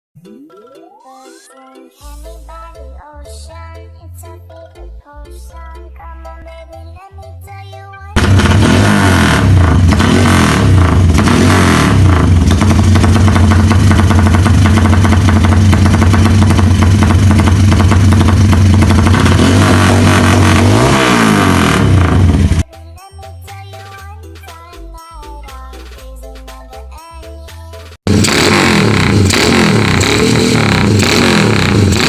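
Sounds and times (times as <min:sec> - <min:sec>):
motorcycle exhaust choppy note: 0:08.2 - 0:22.6, 0:28.1 - 0:32.0.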